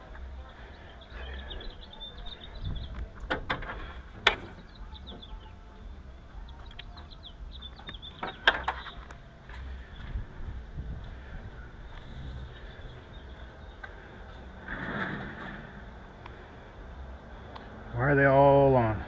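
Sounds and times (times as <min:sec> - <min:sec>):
small birds chirping: 0:00.0 - 0:14.6.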